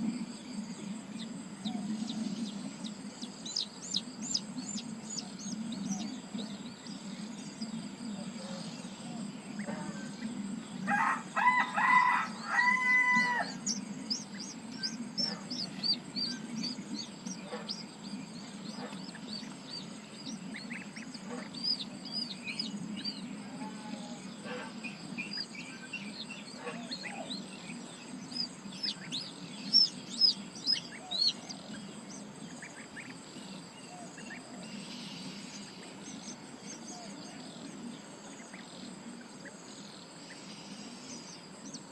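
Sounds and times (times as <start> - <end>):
small birds chirping: 0.0 - 41.9
steady low hum: 0.0 - 41.9
rooster crowing: 10.8 - 13.8, 23.5 - 24.6.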